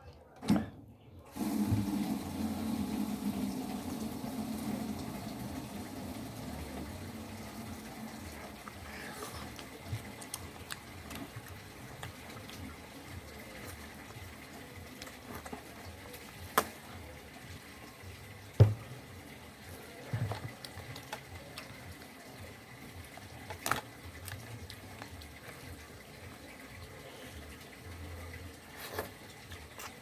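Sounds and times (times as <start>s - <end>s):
wet chewing and mixing food: 6.5s - 30.0s.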